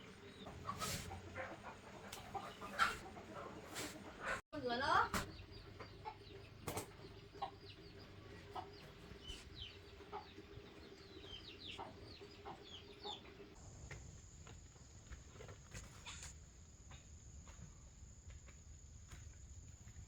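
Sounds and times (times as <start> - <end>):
chickens clucking: 0.0 - 13.6.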